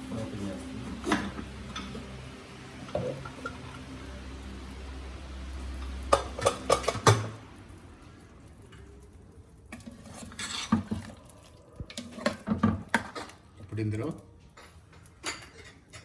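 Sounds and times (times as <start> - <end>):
ladle scraping and clinking pot: 5.8 - 7.4, 9.7 - 11.3.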